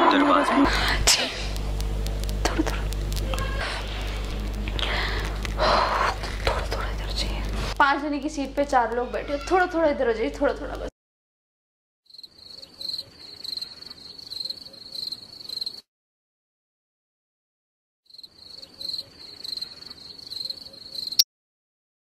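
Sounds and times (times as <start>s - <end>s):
cricket chirping: 12.1s - 15.8s, 18.1s - 21.2s.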